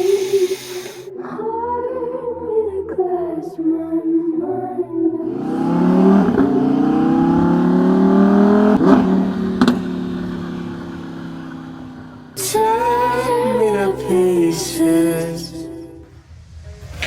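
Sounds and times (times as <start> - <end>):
sports car accelerating: 5.2 - 15.7
exhaust cracks: 5.3 - 13.4.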